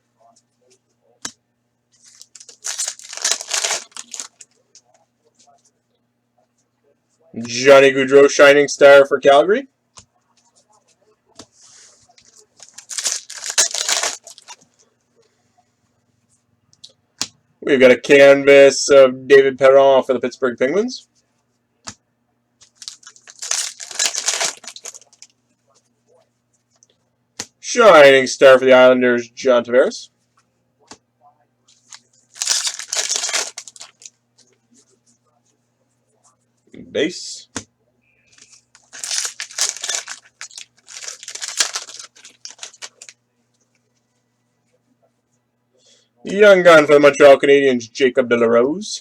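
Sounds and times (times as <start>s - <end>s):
foil wrapper tearing and crinkling: 2.1s - 4.4s, 12.6s - 14.6s, 22.7s - 25.2s, 31.9s - 34.1s, 38.8s - 43.1s.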